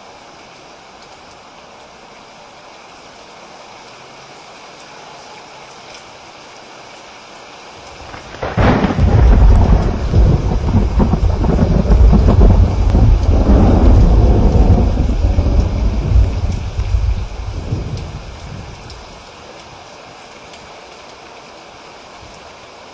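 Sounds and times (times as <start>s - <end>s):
steady rain: 0.0s - 22.9s
rumbling thunder: 8.0s - 19.2s.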